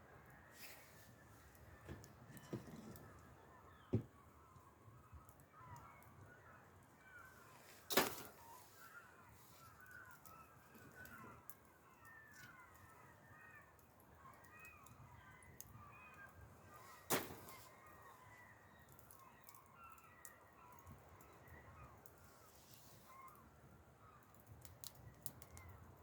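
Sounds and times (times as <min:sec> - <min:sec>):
birds calling: 0:00.2 - 0:25.9
wood fire crackling: 0:00.2 - 0:26.0
sharp loud snaps of fire: 0:17.1 - 0:17.8.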